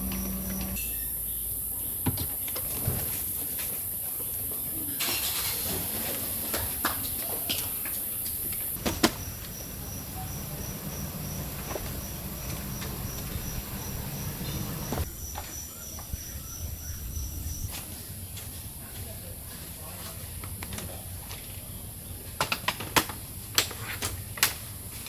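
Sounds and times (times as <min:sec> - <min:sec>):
insect chirping: 0:00.0 - 0:17.9.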